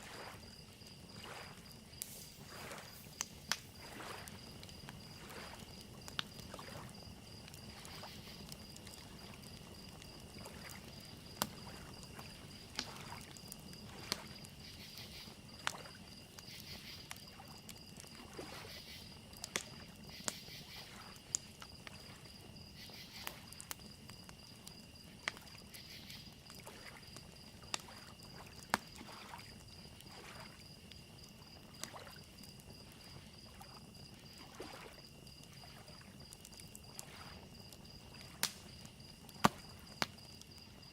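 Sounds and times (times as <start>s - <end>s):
lake waves lapping: 0.0s - 7.0s, 11.5s - 13.3s, 30.1s - 30.5s, 33.1s - 36.0s, 37.0s - 37.4s
crickets chirping: 0.0s - 40.9s
wood fire crackling and popping: 0.4s - 34.5s, 35.4s - 40.9s.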